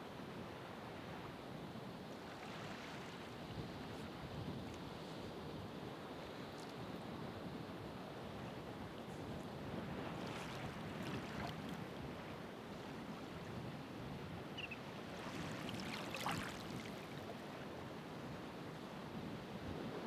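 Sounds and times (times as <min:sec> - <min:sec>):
ocean waves washing on shore: 0:07.5 - 0:20.0.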